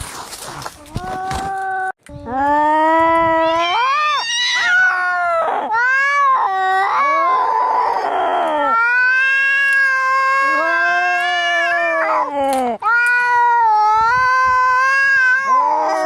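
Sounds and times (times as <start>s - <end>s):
cats yowling in a fight: 3.3s - 16.0s.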